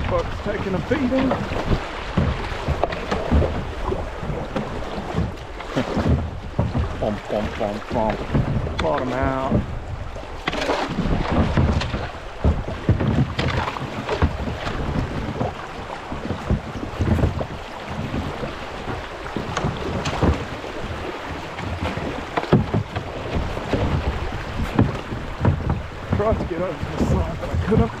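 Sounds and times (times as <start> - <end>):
kayak hull scraping creek bed: 0.0 - 28.0
rushing shallow water: 0.0 - 28.0.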